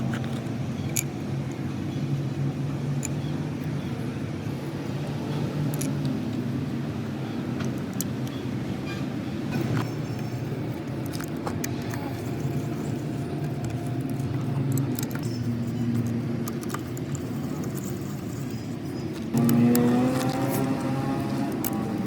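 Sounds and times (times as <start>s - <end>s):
vehicle engine running: 9.7s - 22.0s.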